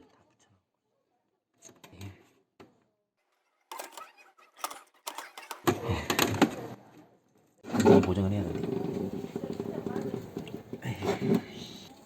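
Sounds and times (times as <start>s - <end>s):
laptop parts clicking and rattling: 3.7s - 6.5s.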